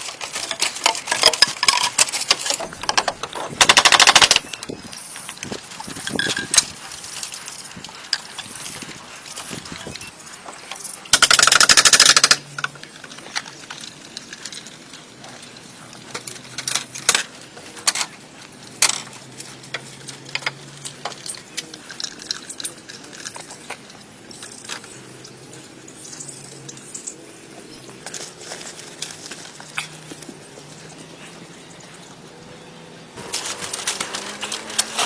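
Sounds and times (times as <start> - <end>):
rapid rattling burst: 0.6 - 4.4, 11.1 - 12.5.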